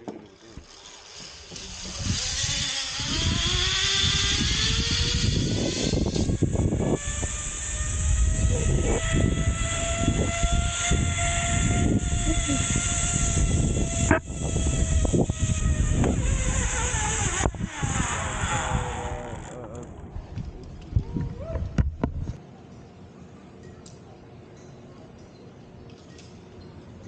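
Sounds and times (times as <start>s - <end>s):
zipline pulleys whining: 0.2s - 20.1s
wind on microphone: 1.5s - 22.4s.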